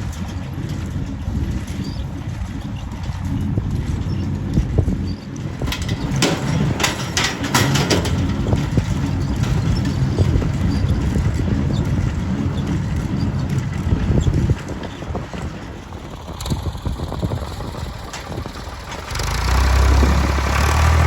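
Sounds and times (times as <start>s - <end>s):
diesel tractor engine running: 0.0s - 21.0s
clattering metal knocks: 5.4s - 16.4s.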